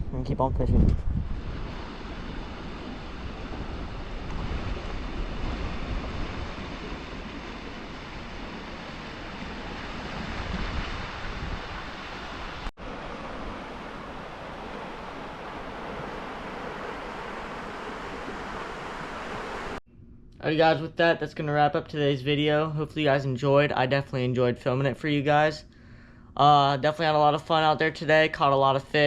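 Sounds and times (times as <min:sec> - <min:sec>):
wind rumbling on microphone: 0:00.0 - 0:19.8
flowing creek water: 0:01.8 - 0:19.8.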